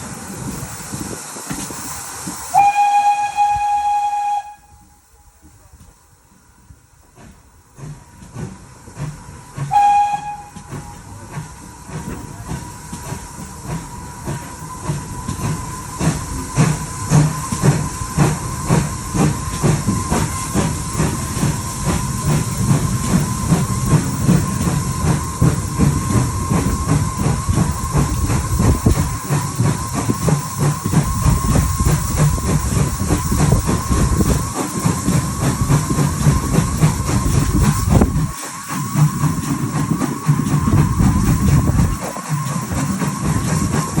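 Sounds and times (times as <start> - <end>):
steam locomotive chuffing: 0.0 - 44.0
steam locomotive whistle: 2.5 - 5.4, 9.7 - 11.2.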